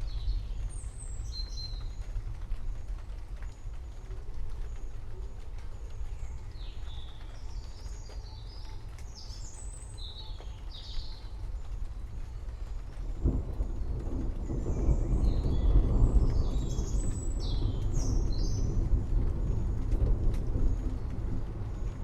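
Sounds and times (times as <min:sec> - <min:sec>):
forest birds chirping: 0:00.0 - 0:22.0
distant thunder rolling: 0:10.1 - 0:22.0
low rumble: 0:11.1 - 0:22.0.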